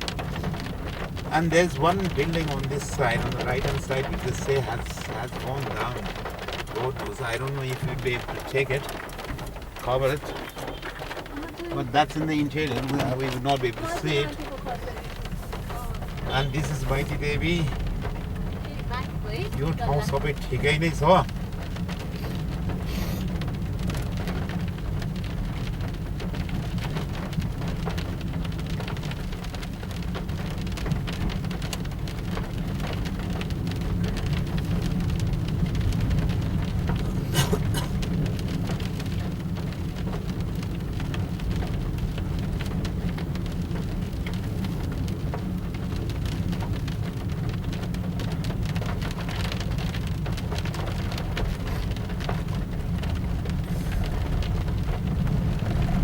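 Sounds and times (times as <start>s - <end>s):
road and engine rumble in car: 0.0s - 56.0s
wind buffeting microphone: 8.0s - 20.6s, 21.2s - 56.0s.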